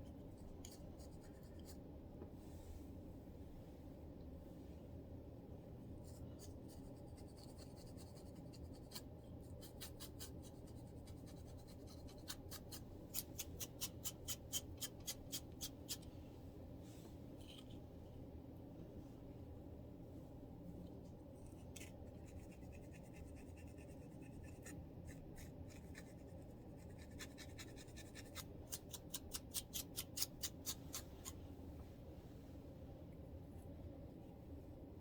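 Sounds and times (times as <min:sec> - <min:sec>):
steady low hum: 0:00.0 - 0:35.0
scratching scalp: 0:06.0 - 0:16.1.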